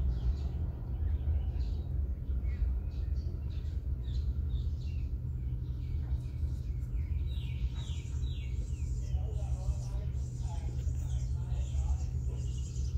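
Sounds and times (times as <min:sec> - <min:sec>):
birds chirping: 0:00.0 - 0:12.9
steady low rumble: 0:00.0 - 0:12.9.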